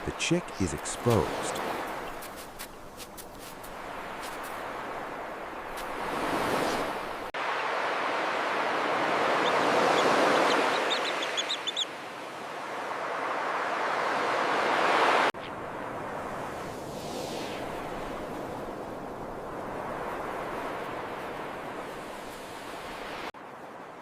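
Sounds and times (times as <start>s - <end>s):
ocean surf on beach: 0.0s - 24.0s
bird chirps: 9.4s - 11.9s.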